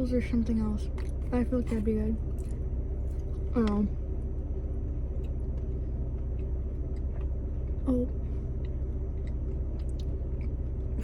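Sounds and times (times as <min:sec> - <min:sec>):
car engine idling: 0:00.0 - 0:11.0
person chewing food: 0:02.3 - 0:03.5, 0:05.1 - 0:11.0.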